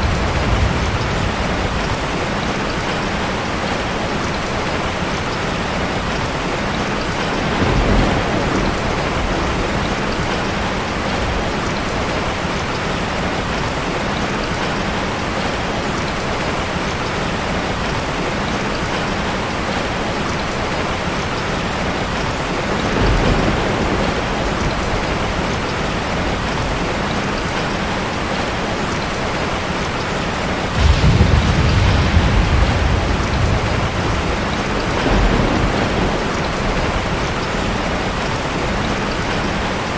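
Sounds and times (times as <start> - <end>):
deep thunder rumbles: 0.0 - 6.1, 6.8 - 12.9, 21.8 - 28.6, 30.3 - 39.9
heavy rain pouring: 0.0 - 39.9.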